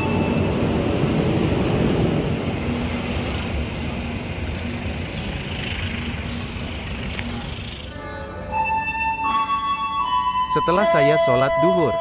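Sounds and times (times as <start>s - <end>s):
train wheels rumbling on rail: 0.0s - 8.1s.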